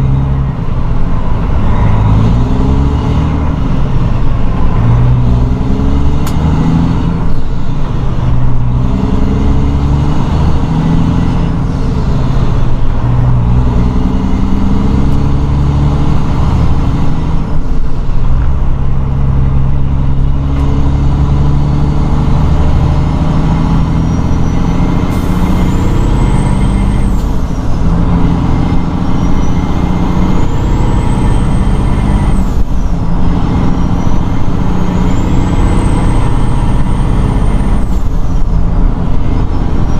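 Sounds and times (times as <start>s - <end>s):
truck diesel engine shifting gears: 0.0s - 39.9s.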